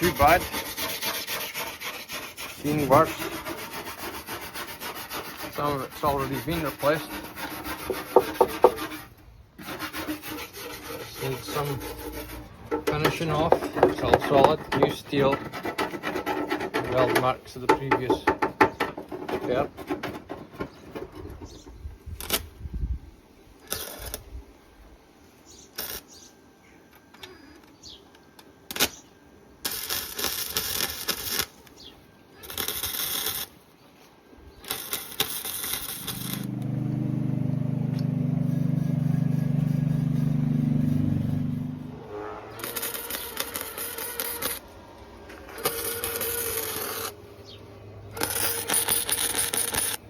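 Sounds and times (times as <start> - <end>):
sharp metallic knocks: 7.9 - 8.9, 16.7 - 20.8
hissing bursts: 34.6 - 36.6.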